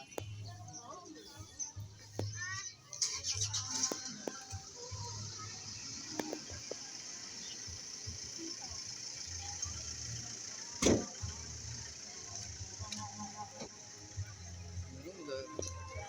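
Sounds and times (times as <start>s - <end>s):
sharp thump: 10.8s - 11.2s.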